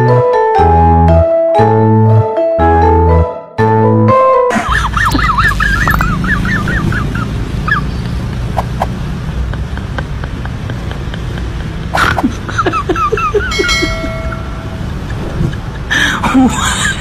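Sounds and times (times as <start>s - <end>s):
distant traffic rumble: 4.6s - 17.0s
small bird chirping: 5.0s - 8.2s.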